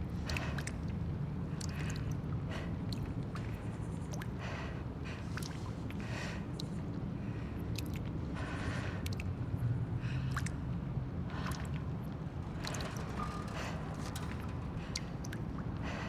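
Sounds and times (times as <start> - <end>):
clicks ticks and creaks: 11.4 - 15.9.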